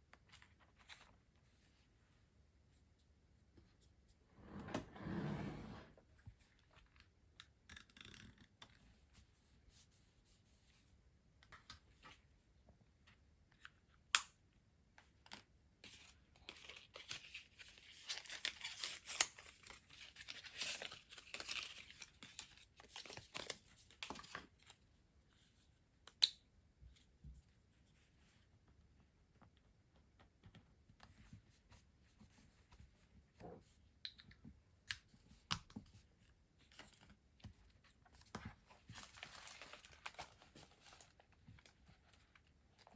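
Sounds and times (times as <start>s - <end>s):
packaging crinkling and tearing: 16.4s - 24.7s, 39.0s - 41.7s.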